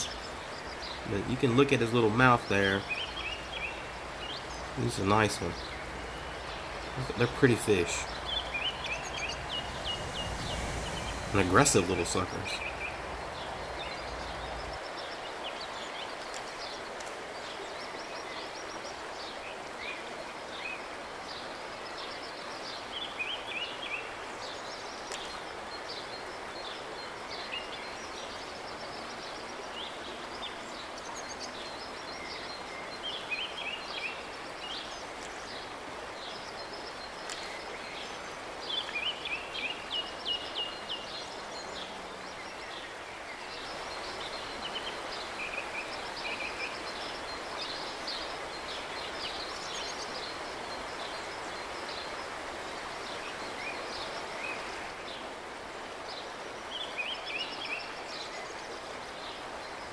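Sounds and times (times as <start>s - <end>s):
birds singing: 0.0s - 55.3s
outdoor hiss: 0.0s - 59.9s
high bird chirps: 2.8s - 14.9s.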